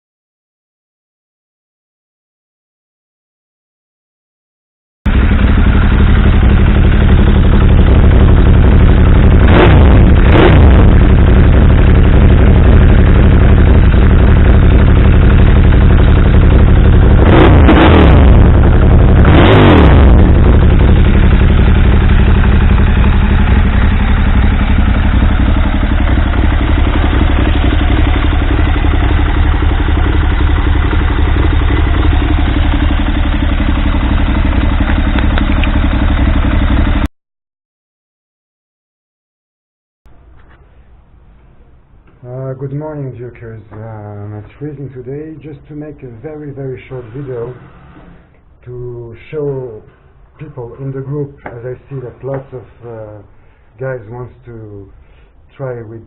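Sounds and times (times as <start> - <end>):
motorcycle engine idling and revving: 5.1 - 37.1, 44.4 - 48.5.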